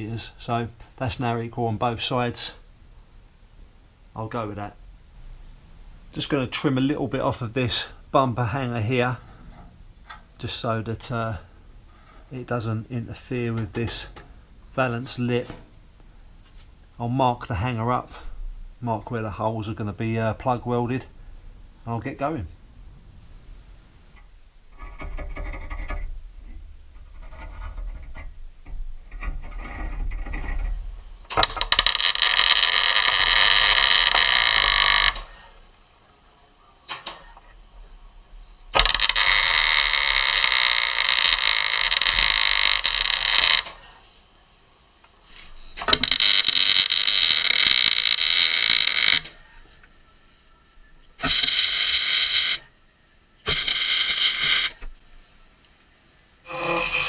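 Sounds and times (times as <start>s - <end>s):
power tool cutting steel: 38.8s - 43.7s, 51.2s - 52.6s, 53.5s - 54.8s, 56.4s - 57.0s.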